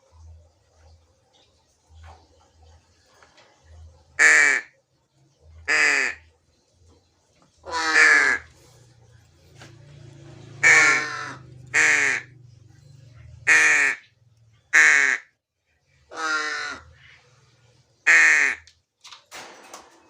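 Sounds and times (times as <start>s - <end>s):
crow cawing: 5.7s - 6.2s, 7.6s - 8.6s, 10.6s - 12.3s, 13.5s - 14.1s, 14.8s - 15.2s, 16.1s - 17.2s, 18.1s - 18.7s.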